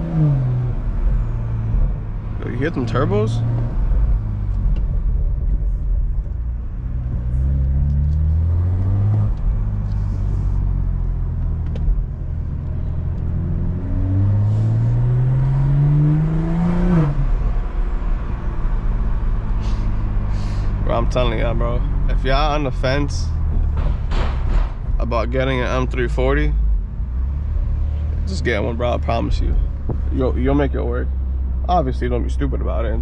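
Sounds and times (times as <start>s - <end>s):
car engine accelerating: 0.0s - 33.0s.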